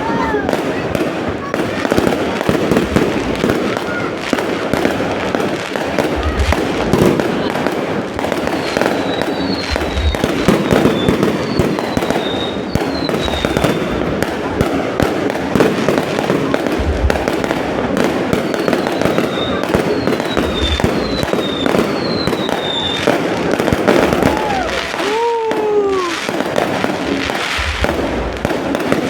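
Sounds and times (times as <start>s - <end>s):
deep firework thuds: 0.0s - 29.0s
fireworks crackling: 0.0s - 29.0s
firework whistles falling in pitch: 8.5s - 14.0s, 18.3s - 23.2s, 23.8s - 26.2s.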